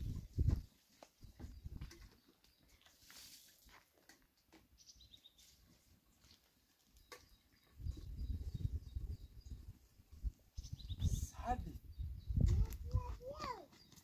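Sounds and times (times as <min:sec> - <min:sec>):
faint high bird chirps: 0:06.9 - 0:09.8, 0:10.6 - 0:14.0.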